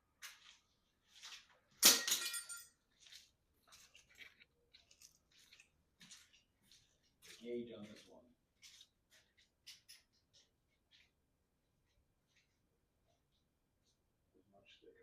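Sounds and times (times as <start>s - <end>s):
light metal clinks and rattles: 1.8s - 2.8s.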